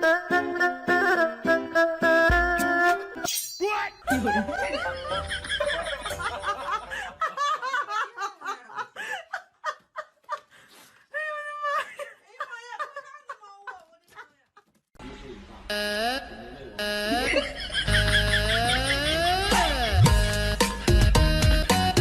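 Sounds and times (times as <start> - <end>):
people laughing: 4.1 - 10.5, 11.3 - 14.6, 17.0 - 20.1.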